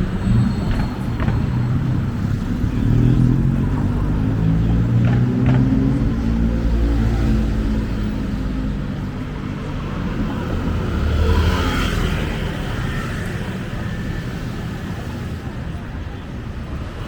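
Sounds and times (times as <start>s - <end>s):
passing traffic rush: 0.0s - 17.0s.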